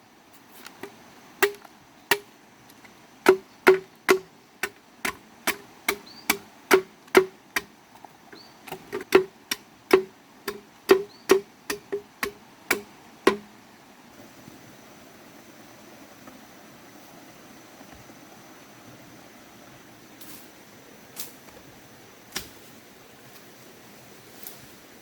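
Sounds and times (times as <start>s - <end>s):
faint steady hiss: 0.0s - 25.0s
sharp chopping knocks: 1.4s - 2.3s, 3.3s - 7.7s, 8.7s - 13.5s.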